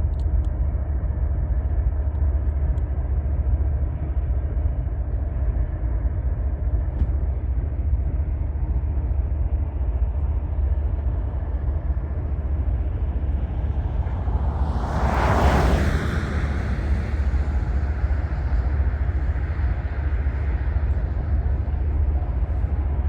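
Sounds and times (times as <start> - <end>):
moving vehicle rumble: 0.0 - 23.0.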